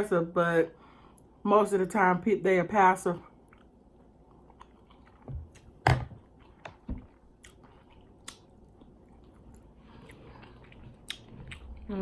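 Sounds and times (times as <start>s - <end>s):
wet chewing with crunches: 3.4s - 12.0s.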